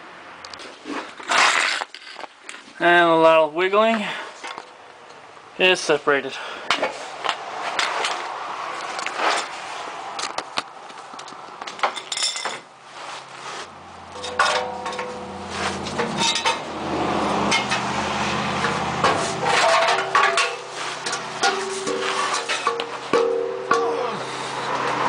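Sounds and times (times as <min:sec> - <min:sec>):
exhaust pipes clanking: 0:13.7 - 0:25.0.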